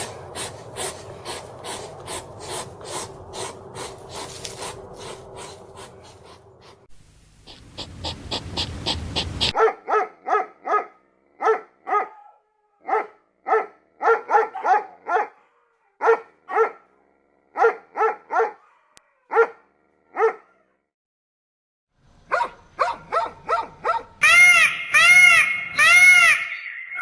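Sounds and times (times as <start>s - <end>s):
dog barking: 9.4s - 20.8s, 22.3s - 24.2s.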